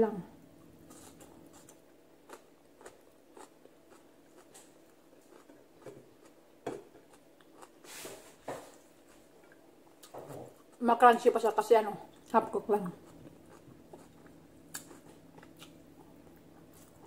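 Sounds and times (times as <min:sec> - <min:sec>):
crunchy chewing: 0:00.8 - 0:06.4, 0:07.0 - 0:07.9, 0:12.9 - 0:17.0.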